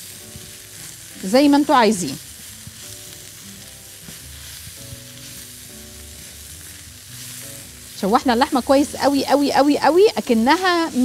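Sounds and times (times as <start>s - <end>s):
meat and onions sizzling in wok: 0.0s - 11.0s
wooden spatula stirring: 0.3s - 8.0s.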